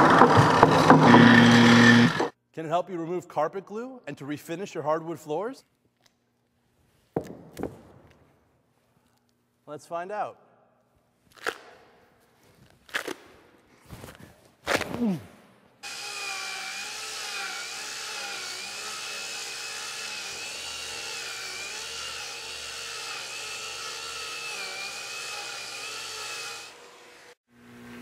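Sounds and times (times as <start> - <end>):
angle grinder whining on wood: 0.0 - 2.3, 15.8 - 27.4.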